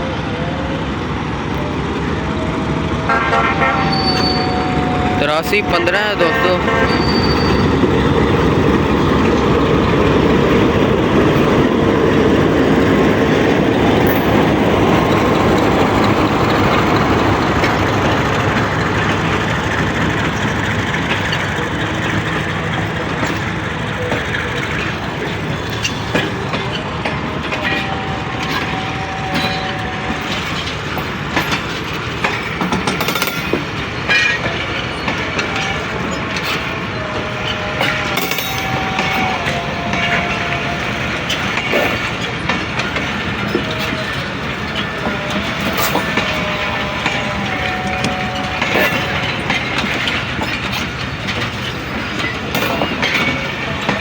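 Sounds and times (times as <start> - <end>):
train rumble: 0.0 - 54.0
train wheels clattering over rail joints: 0.9 - 54.0.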